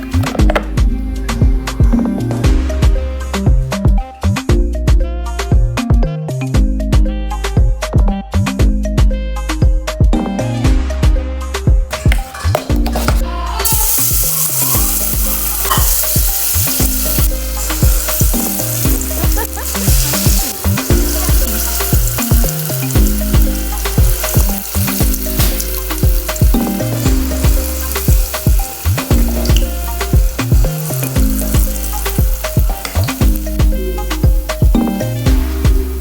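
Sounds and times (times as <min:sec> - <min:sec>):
background music with bass beat: 0:00.0 - 0:36.0
fritters sizzling in hot oil: 0:11.9 - 0:36.0.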